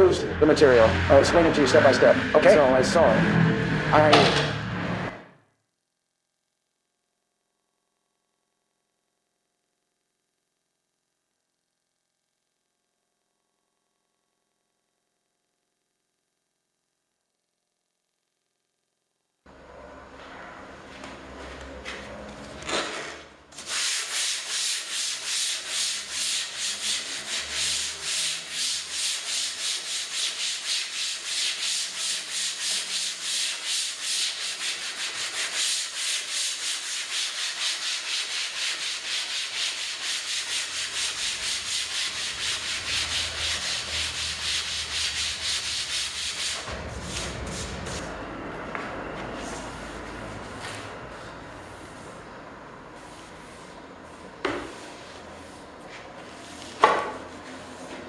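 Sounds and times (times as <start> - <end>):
hand sanding wood: 22.7 - 48.1.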